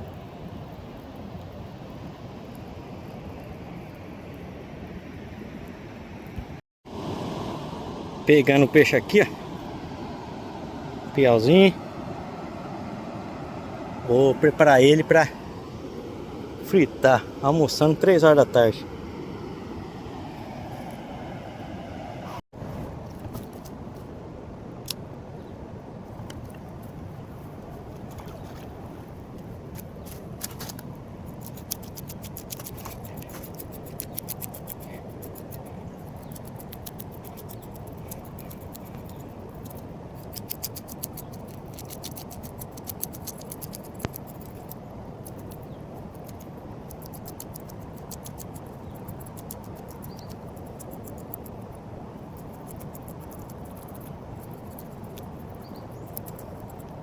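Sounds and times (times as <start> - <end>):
river rushing: 6.9 - 22.4.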